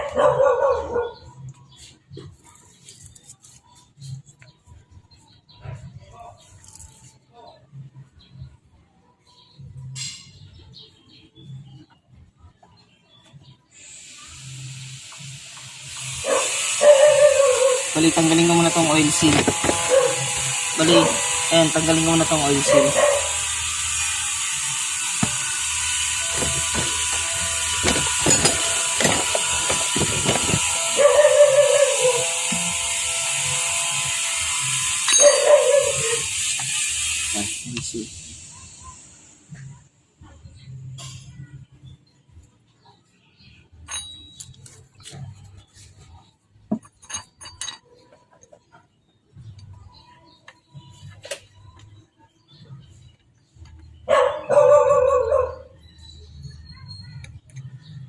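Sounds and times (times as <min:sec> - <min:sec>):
tool clicking and scraping metal: 0:18.1 - 0:21.8, 0:22.6 - 0:31.1.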